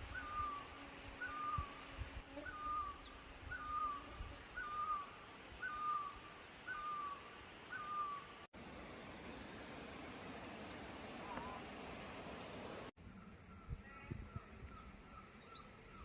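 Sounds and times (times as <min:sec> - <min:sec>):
bird whistling call: 0:02.4 - 0:04.0, 0:04.6 - 0:08.3.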